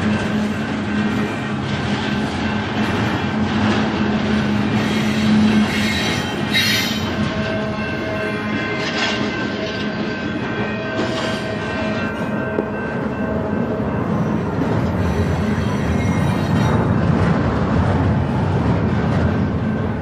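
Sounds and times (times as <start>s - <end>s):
freight train rolling past: 0.0s - 20.0s
high-pitched wheel squeal: 4.7s - 7.2s, 15.0s - 16.8s.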